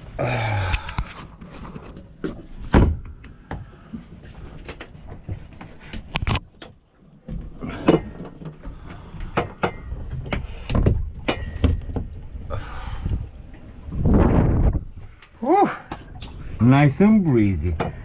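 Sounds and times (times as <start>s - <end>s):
gear knocking and scraping on boat: 1.1s - 12.3s, 16.0s - 18.0s.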